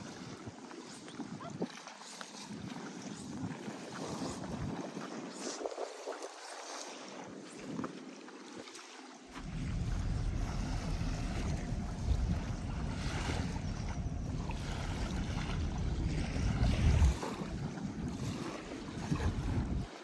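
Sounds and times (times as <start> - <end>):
wind buffeting microphone: 2.5 - 6.0, 9.3 - 20.0.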